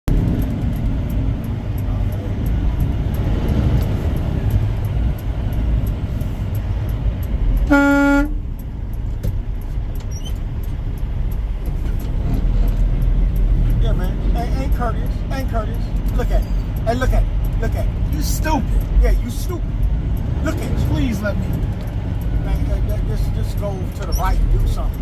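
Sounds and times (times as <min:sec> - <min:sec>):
vehicle rumbling in traffic: 0:00.0 - 0:25.0
faint regular ticking: 0:00.1 - 0:25.0
vehicle horn blast: 0:07.7 - 0:08.4.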